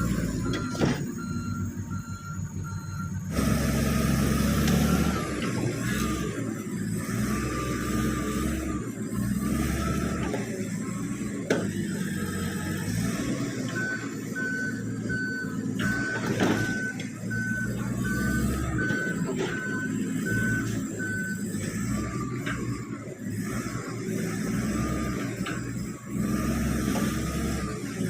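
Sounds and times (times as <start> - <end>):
reversing alarm beeping: 0.0 - 11.3, 12.1 - 27.9
bulldozer diesel engine running: 0.0 - 28.0.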